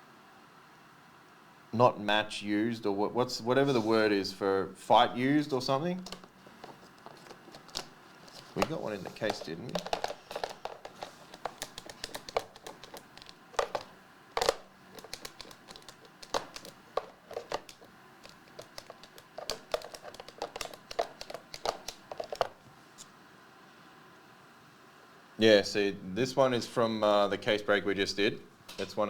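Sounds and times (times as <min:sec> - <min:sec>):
handling cards in plastic sleeves: 0:06.0 - 0:22.7.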